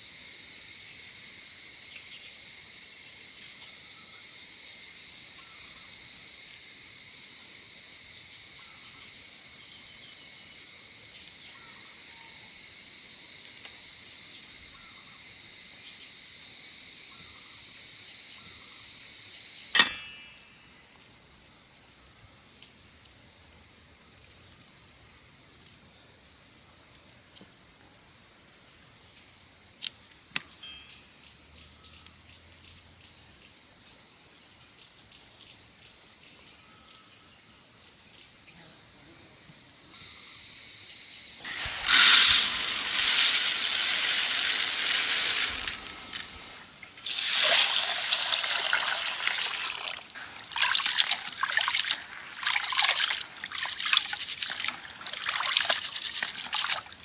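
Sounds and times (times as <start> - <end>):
birds chirping: 41.3 - 57.0
liquid pouring: 41.4 - 57.0.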